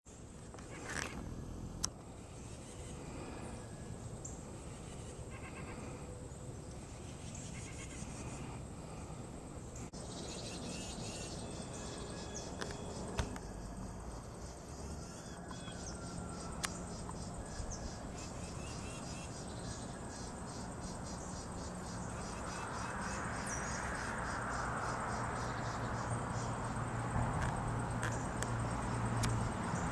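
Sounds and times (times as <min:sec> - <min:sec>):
insect chorus pulsing trill: 0:09.8 - 0:29.9.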